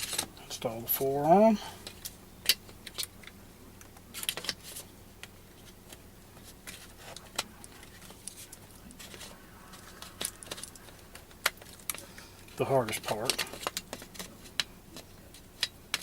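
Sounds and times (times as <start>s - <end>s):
rifle parts clicking and rattling: 10.0s - 16.0s.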